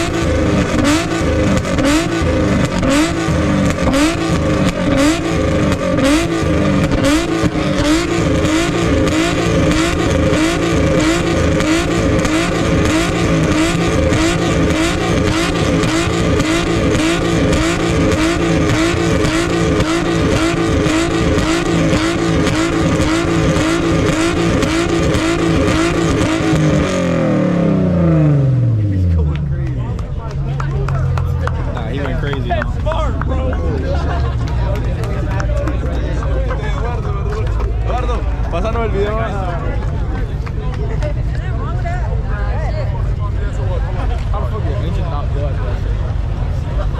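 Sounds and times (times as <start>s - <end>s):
car engine revving hard: 0.0s - 30.4s.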